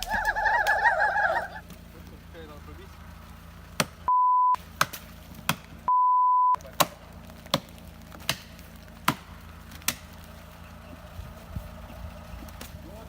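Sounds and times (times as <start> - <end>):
low steady hum: 0.0 - 4.7
censor bleep: 4.1 - 4.6, 5.9 - 6.6.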